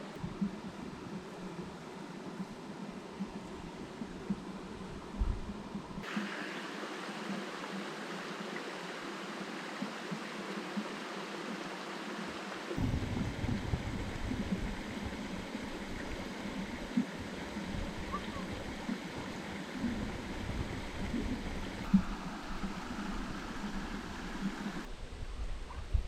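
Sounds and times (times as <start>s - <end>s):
river rushing: 6.0s - 24.9s
irregular low rumbling: 12.8s - 24.9s.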